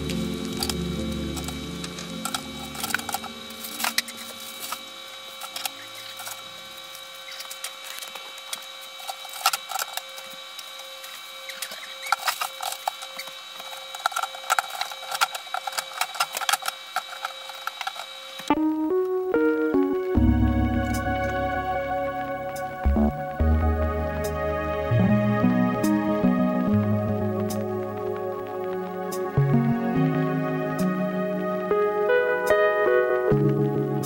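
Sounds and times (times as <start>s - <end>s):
background music: 0.0s - 4.8s, 18.5s - 34.0s
items clicking and knocking: 0.0s - 4.8s, 11.6s - 18.5s
faint steady whine: 0.0s - 34.0s.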